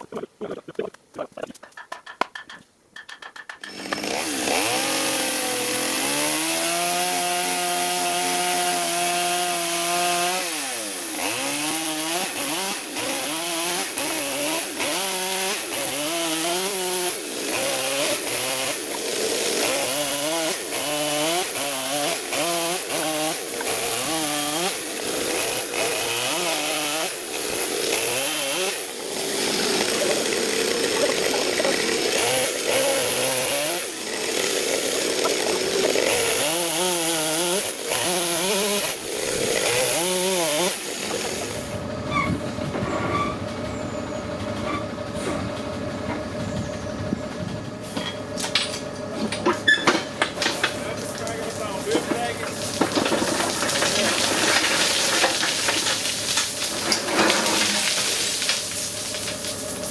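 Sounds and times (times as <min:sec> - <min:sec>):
chainsaw revving: 0:03.6 - 0:41.9, 0:50.6 - 0:59.9.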